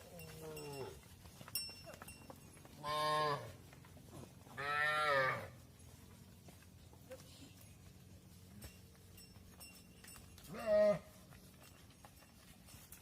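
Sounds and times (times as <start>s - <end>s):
cattle mooing: 4.6s - 5.5s.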